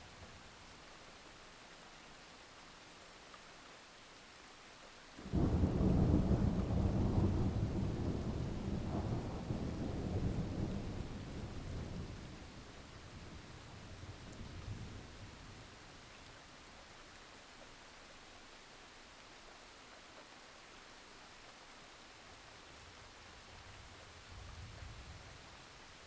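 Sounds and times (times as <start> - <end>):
steady rain: 0.0 - 26.0
thunderclap rolling rumble: 5.3 - 12.3.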